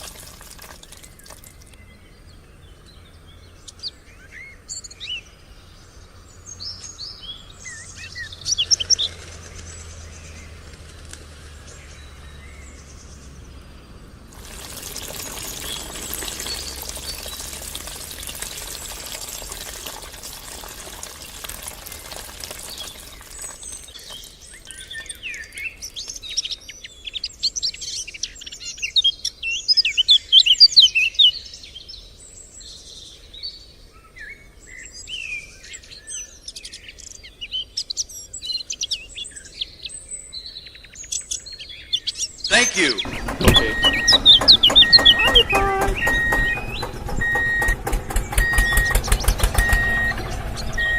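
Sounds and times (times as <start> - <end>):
birds chirping and singing: 40.4 - 50.8.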